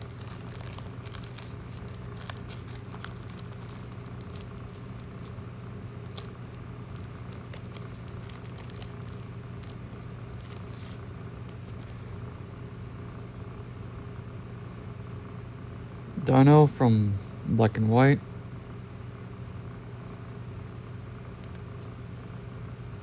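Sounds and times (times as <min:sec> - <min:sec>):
foil pack crackling: 0:00.0 - 0:12.8
steady low hum: 0:00.0 - 0:23.0.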